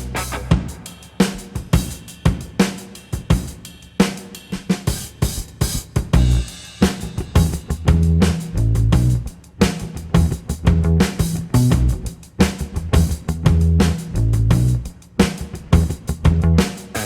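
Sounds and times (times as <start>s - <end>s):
deep bass line: 0.0s - 0.6s, 6.2s - 6.5s, 7.4s - 9.3s, 10.0s - 14.8s, 15.6s - 17.0s
drum beat through car speakers: 0.0s - 17.0s.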